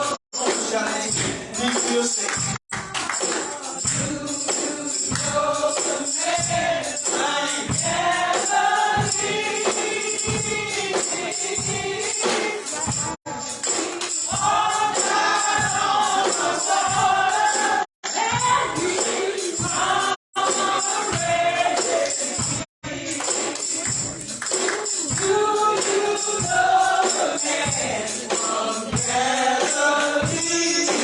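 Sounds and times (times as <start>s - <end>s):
choir singing gospel: 0.0s - 31.0s
tambourine beat: 0.0s - 31.0s.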